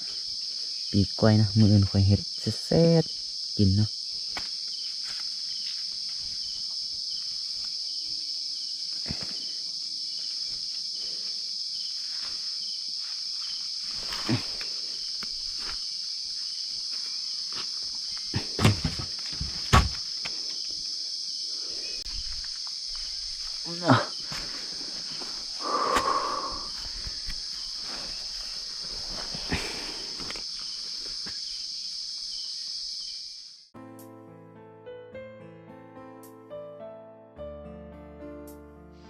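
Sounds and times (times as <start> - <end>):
insects chorus: 0.0 - 33.7
rustling: 11.9 - 20.6
loud thumps: 18.4 - 20.1.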